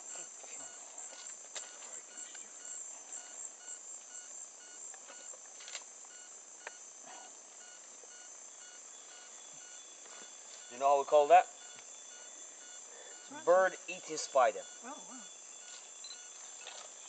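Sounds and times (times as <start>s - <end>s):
insects trilling: 0.0s - 17.0s
faint short beeping call: 7.2s - 16.8s.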